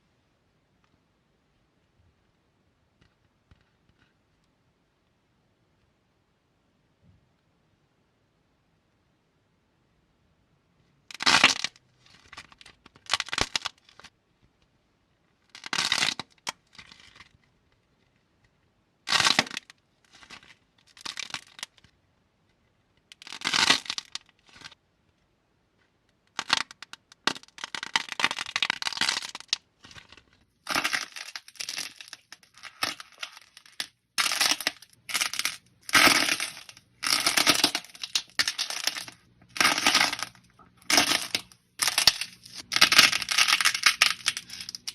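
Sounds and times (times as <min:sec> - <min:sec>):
slime squishing and crackling: 0:11.1 - 0:14.1, 0:15.5 - 0:17.4, 0:19.1 - 0:21.9, 0:23.2 - 0:24.8, 0:26.3 - 0:44.9.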